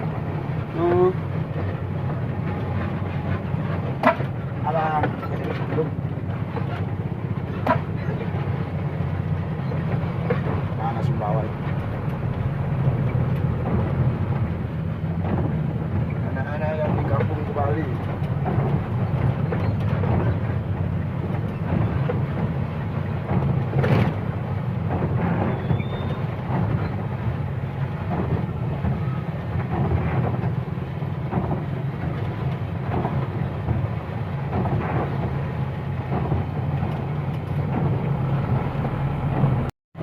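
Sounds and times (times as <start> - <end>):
truck engine and road noise: 0.0 - 40.0.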